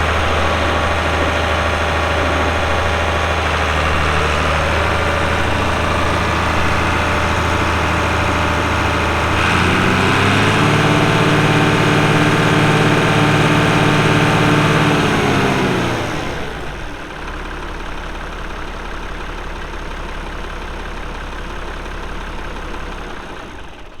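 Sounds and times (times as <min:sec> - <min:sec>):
tractor diesel engine revving: 0:00.0 - 0:17.9.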